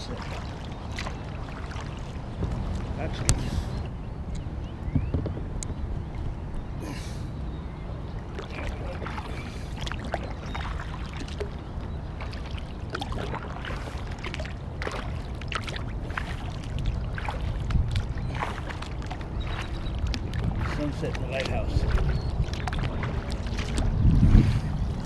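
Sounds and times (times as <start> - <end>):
paddle splashing in water: 0.0 - 3.9, 8.2 - 25.0
steady low rumble: 0.0 - 25.0
water drips: 8.3 - 24.2.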